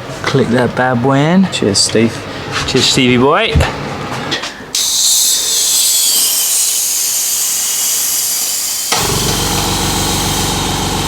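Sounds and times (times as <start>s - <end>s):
air compressor motor humming: 4.8s - 11.0s
compressed air hissing: 4.8s - 11.0s.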